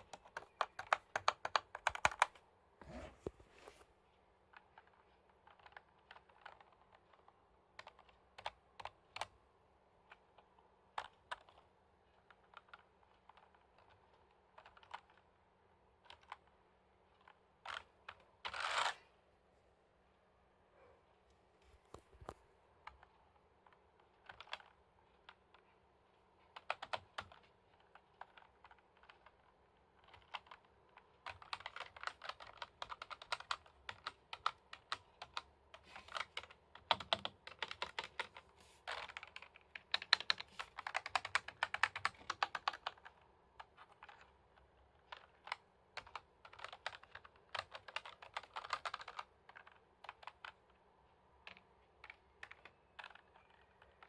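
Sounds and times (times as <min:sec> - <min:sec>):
typing on computer keyboard: 0:00.0 - 0:02.4, 0:04.5 - 0:09.4, 0:10.0 - 0:15.3, 0:16.0 - 0:16.5, 0:23.7 - 0:25.7, 0:26.4 - 0:50.8, 0:51.4 - 0:54.0.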